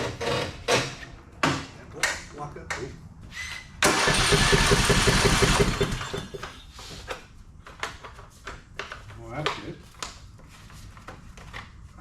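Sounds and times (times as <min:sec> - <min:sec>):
mower engine cranking and running: 0:03.8 - 0:06.4.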